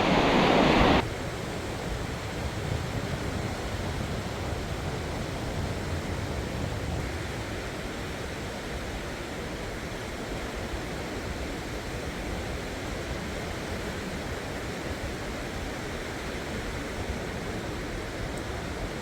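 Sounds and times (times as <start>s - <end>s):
sea surf breaking on shore: 0.0s - 1.3s.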